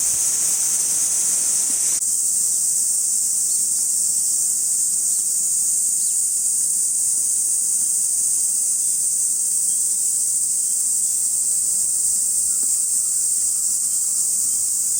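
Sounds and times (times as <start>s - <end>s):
insects shrilling: 0.0s - 2.2s.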